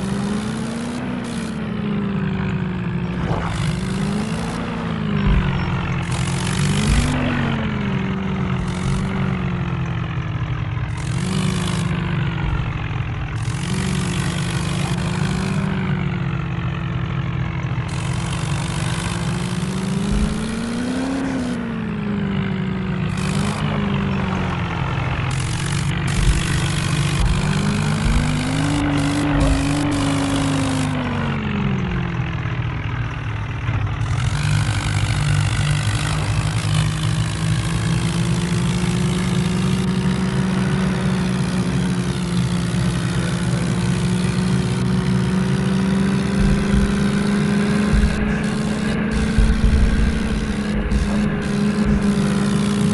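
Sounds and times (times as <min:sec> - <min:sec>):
toy tractor droning hum: 0:00.0 - 0:52.9.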